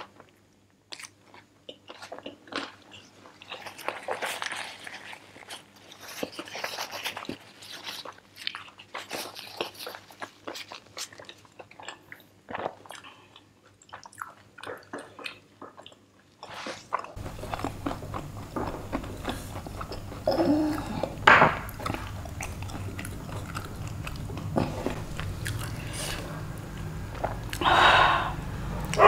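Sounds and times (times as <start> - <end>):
person chewing food: 0.1 - 29.0
steady low hum: 17.2 - 29.0.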